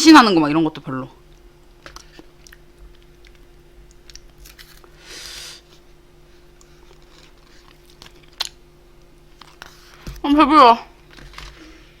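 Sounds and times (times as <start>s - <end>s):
person chewing food: 1.9s - 10.0s.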